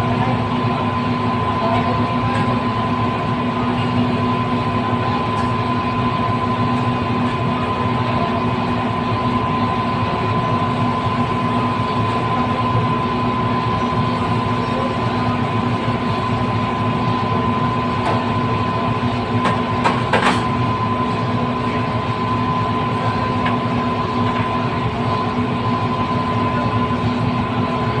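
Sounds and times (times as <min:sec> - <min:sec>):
mechanical rumble with hum: 0:00.0 - 0:28.0.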